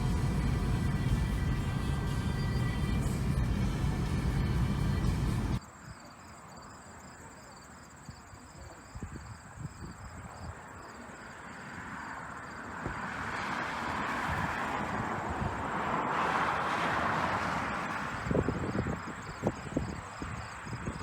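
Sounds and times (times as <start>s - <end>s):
rush of noise: 0.0s - 5.6s
insects chirping: 0.0s - 12.7s, 17.9s - 21.0s.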